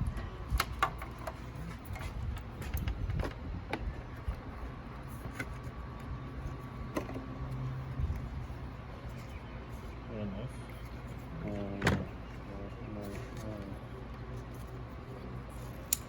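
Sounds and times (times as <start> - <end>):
steady low hum: 0.0 - 16.0
light clicks and taps of parts: 15.7 - 16.0.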